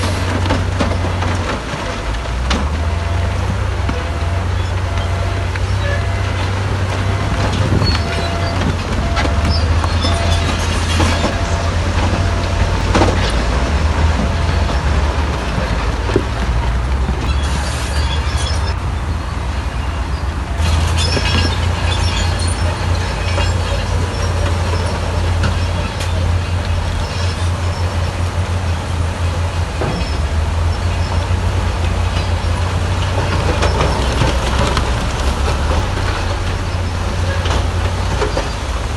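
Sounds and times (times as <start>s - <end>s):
heavy machinery diesel rumble: 0.0s - 38.9s
repeating beep: 7.8s - 13.4s.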